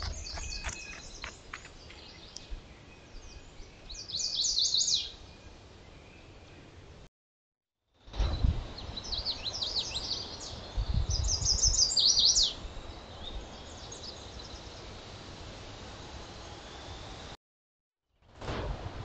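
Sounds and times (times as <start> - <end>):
songbird singing: 0.0 - 7.1, 8.2 - 17.4.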